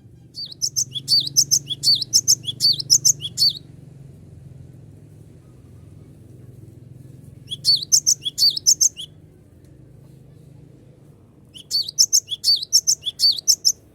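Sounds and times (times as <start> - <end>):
faint low hum: 0.0 - 13.9
bird chirping rapidly: 0.4 - 3.6, 7.4 - 9.1, 11.6 - 13.9.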